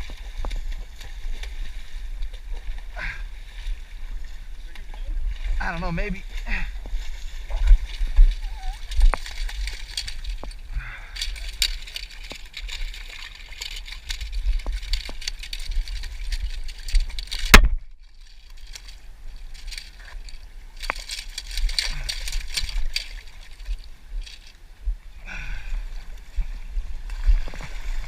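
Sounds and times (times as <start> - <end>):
water washing: 0.0 - 24.5.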